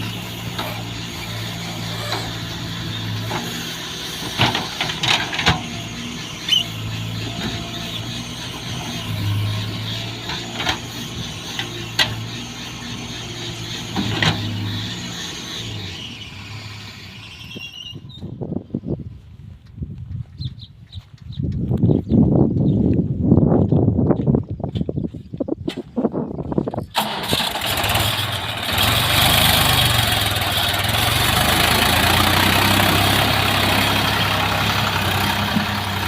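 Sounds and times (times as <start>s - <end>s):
farm machine engine running: 0.0s - 17.9s, 26.9s - 36.0s
metallic clanks and squeals: 0.0s - 18.4s.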